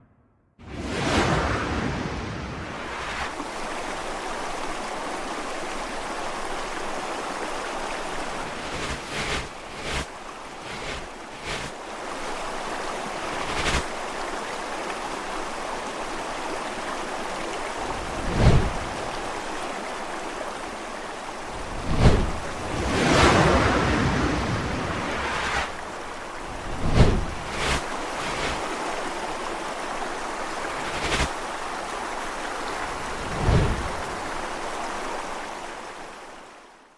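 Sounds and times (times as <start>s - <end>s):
river rushing: 0.7s - 36.7s
swoosh sound effects: 26.6s - 27.8s.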